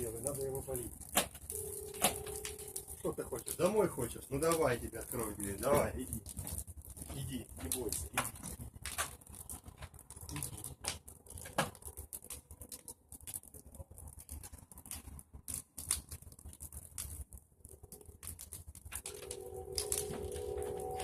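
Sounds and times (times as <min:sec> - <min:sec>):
burning branches crackling: 0:00.0 - 0:21.0
low fire rumble: 0:00.0 - 0:21.0.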